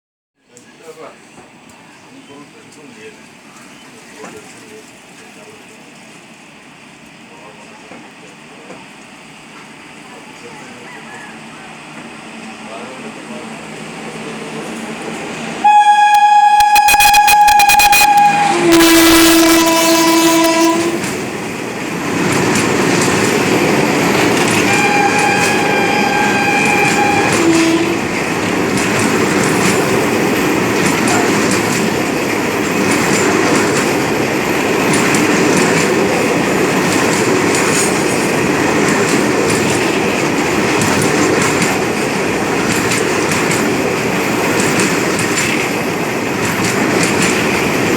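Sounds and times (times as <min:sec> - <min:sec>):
locomotive horn blowing: 0:15.6 - 0:21.1, 0:24.5 - 0:28.1
train wheels clattering on rails: 0:20.6 - 0:47.9.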